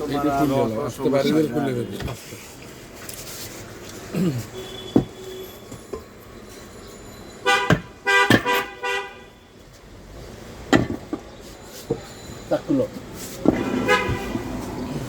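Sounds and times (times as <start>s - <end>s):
vehicle horn honking: 4.5s - 5.7s, 7.4s - 9.5s, 13.5s - 14.8s
sharp knocks: 7.7s - 8.7s.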